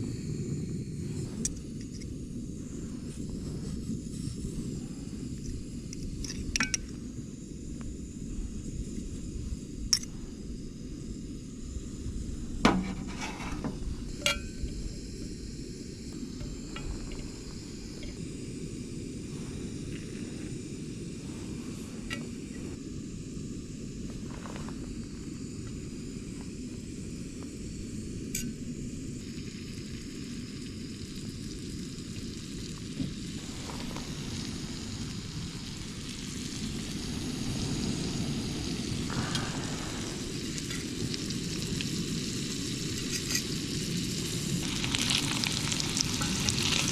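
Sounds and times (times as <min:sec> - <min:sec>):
meat sizzling in a pan: 0:29.2 - 0:46.9.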